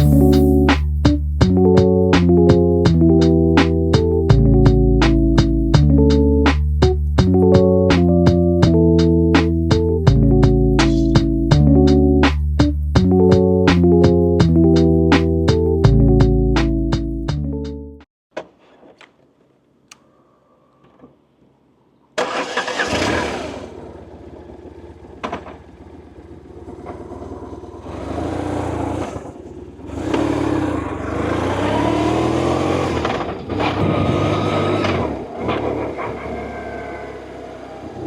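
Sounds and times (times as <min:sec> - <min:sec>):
faint clicks: 0:19.8 - 0:20.1
motorcycle engine starting and revving: 0:22.2 - 0:38.0.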